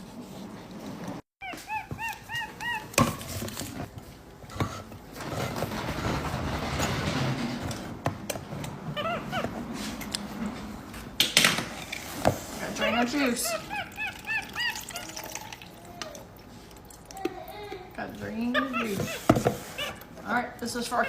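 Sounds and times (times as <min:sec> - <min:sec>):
monkey chirping: 0:01.4 - 0:03.2, 0:12.8 - 0:15.4
kitchen handling noise: 0:01.5 - 0:13.4, 0:18.2 - 0:20.2.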